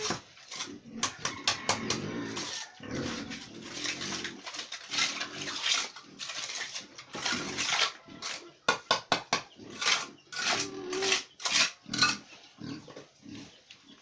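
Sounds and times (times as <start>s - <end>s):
pig grunting: 1.7s - 8.6s, 9.5s - 13.6s.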